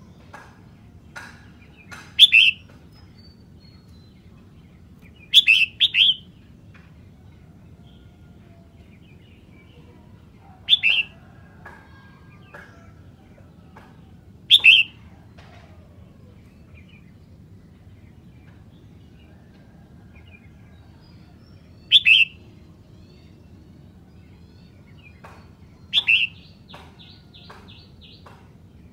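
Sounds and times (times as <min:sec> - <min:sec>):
bulbul singing: 0:01.1 - 0:06.6, 0:08.8 - 0:15.3, 0:20.2 - 0:28.9
faint bird chirps: 0:19.7 - 0:27.8.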